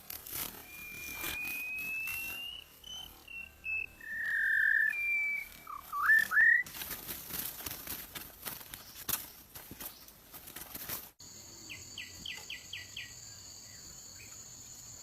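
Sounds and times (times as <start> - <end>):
whistled notes: 0.3 - 6.7.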